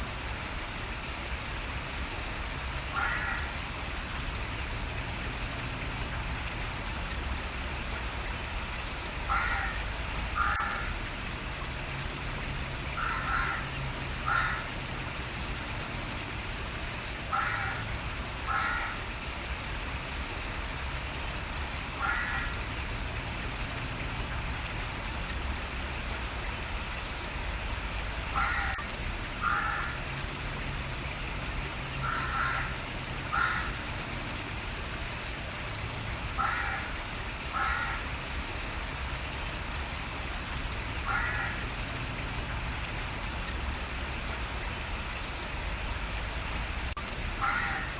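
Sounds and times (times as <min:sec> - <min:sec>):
running water hiss: 0:00.0 - 0:47.9
bird calling: 0:28.4 - 0:28.8, 0:47.4 - 0:47.9.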